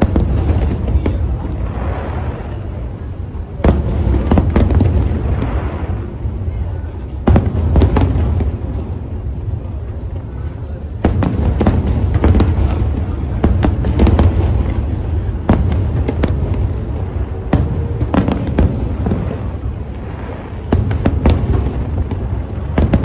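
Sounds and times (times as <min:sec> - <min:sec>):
fireworks cracking: 0:00.0 - 0:23.0
low rumble of fireworks booms: 0:00.0 - 0:23.0.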